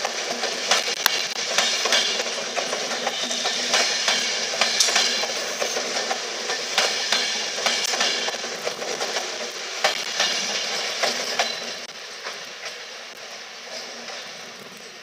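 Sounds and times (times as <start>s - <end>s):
train running rumble: 0.0s - 15.0s
wheels clicking over rail joints: 0.0s - 15.0s.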